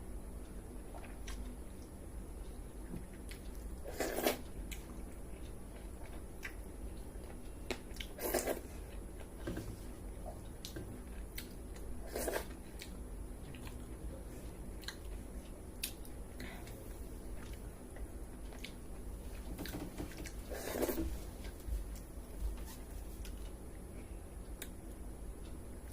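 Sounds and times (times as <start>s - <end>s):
chewing with wet clicks: 0.8s - 9.3s, 10.2s - 14.0s, 14.7s - 16.8s, 17.4s - 19.1s, 24.4s - 25.9s.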